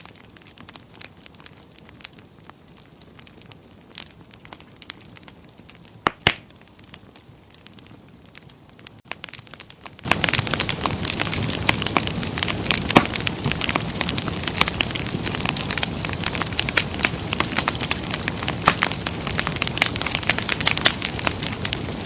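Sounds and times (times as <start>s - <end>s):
wood fire crackling: 0.0s - 22.0s
loud pops: 6.0s - 6.6s, 9.0s - 22.0s.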